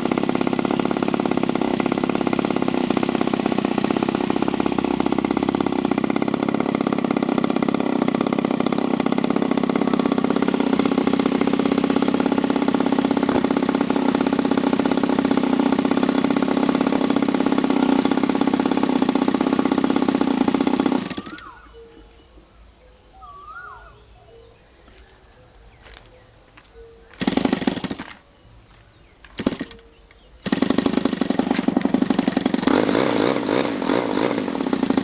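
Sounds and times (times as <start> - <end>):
model aircraft engine running: 0.0 - 21.8, 30.5 - 35.0
faint chirps: 21.2 - 27.2.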